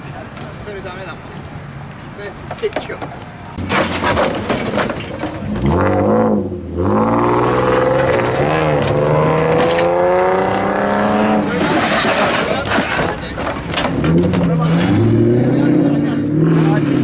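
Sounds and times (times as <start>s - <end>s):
car engine revving: 5.3s - 17.0s.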